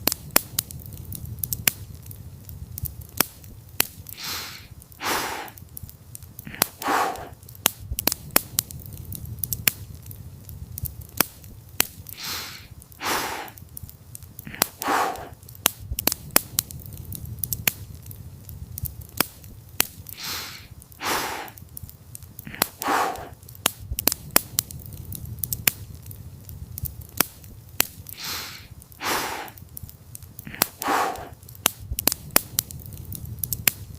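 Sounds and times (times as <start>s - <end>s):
campfire crackling and popping: 0.0s - 33.9s
soft breathy swells: 4.1s - 5.6s, 6.4s - 7.4s, 12.1s - 13.6s, 14.4s - 15.4s, 20.0s - 21.6s, 22.4s - 23.4s, 28.1s - 29.6s, 30.4s - 31.4s
low steady rumble: 7.8s - 11.7s, 15.8s - 19.7s, 23.7s - 27.7s.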